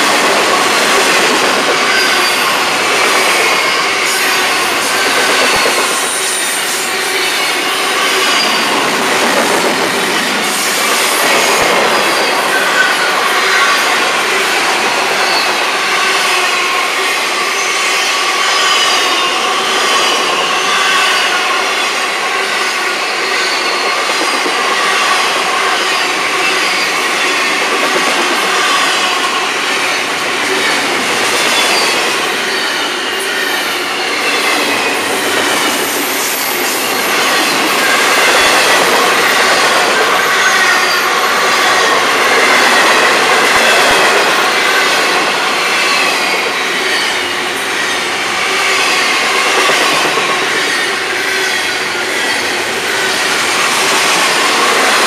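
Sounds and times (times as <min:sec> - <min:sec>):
steel wheels clattering on rail: 0:00.0 - 0:16.7, 0:22.9 - 0:55.0
high wheel squeals: 0:01.8 - 0:09.3, 0:30.6 - 0:55.0.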